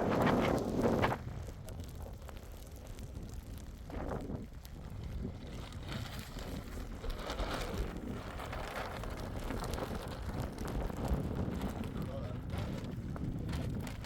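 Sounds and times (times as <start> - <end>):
scattered crackles: 0.0 - 14.0
wind buffeting microphone: 0.0 - 14.0.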